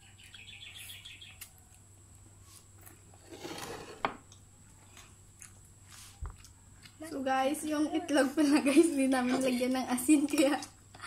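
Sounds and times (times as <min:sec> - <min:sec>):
faint chewing: 0:04.2 - 0:07.8.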